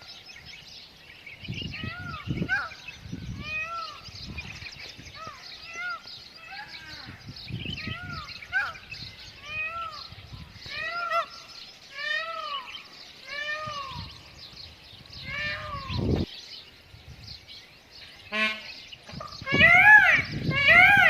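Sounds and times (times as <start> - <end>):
peafowl wailing calls: 1.8 - 14.3, 15.1 - 16.3, 18.2 - 21.0
peafowl stuttering call: 15.2 - 16.2, 18.3 - 21.0.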